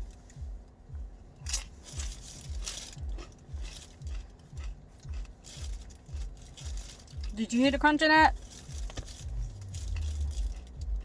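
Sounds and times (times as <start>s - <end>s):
chewing thuds: 0.3s - 7.3s
chips crunching: 1.5s - 7.3s, 8.4s - 11.0s.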